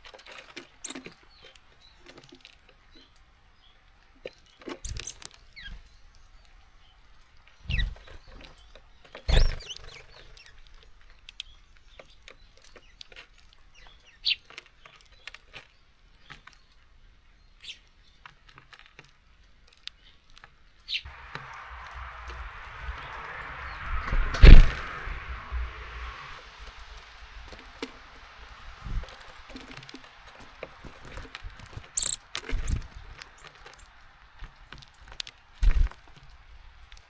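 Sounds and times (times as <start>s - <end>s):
birds pecking at feeder: 0.0s - 3.1s, 4.4s - 5.6s, 26.6s - 37.0s
short bird chirps: 4.8s - 5.2s, 31.9s - 32.8s.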